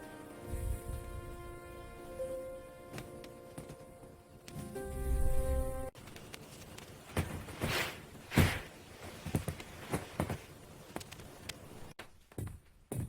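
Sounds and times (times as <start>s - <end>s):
music: 0.0s - 6.0s.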